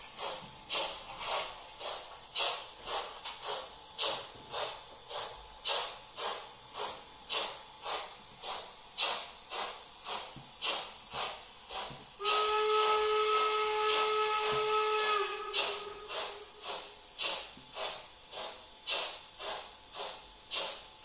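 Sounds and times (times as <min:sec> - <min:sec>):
model steam locomotive chuffing: 0:00.0 - 0:21.0
steam whistle: 0:12.2 - 0:16.7.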